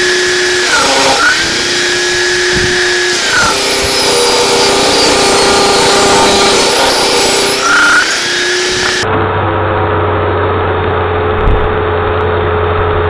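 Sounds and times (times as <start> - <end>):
power tool motor whining: 0.0 - 9.1.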